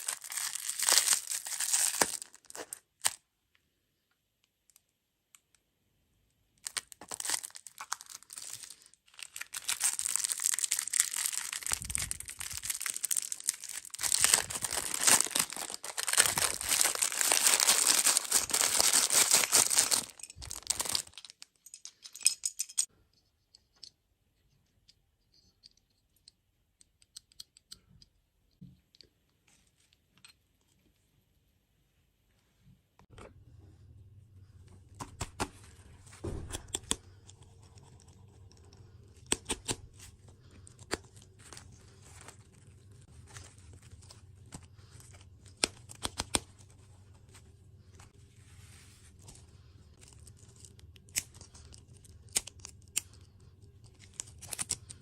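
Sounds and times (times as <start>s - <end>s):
plastic packaging crinkling: 0.0s - 3.2s, 6.6s - 21.7s.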